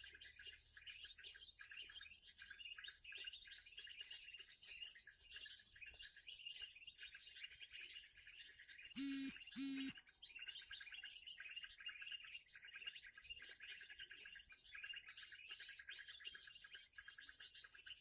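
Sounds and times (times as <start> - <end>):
small birds chirping: 0.0 - 18.0
buzzy honks: 9.0 - 9.9.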